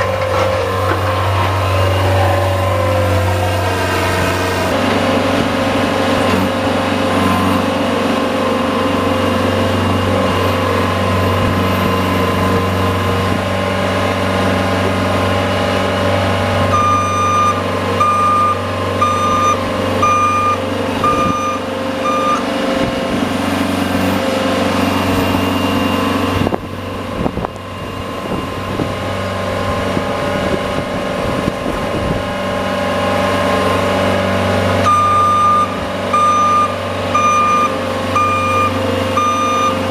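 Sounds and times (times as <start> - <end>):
vehicle engine running under load: 0.0 - 39.9
reverse warning beeps: 16.7 - 22.5, 34.8 - 39.9.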